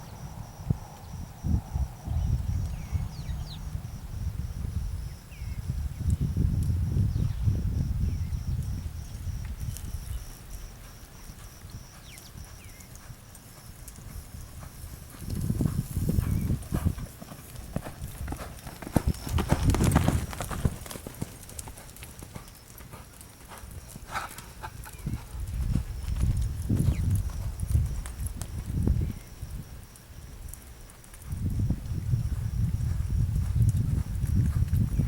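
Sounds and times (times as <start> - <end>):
horse hooves clip-clopping: 8.6 - 35.0.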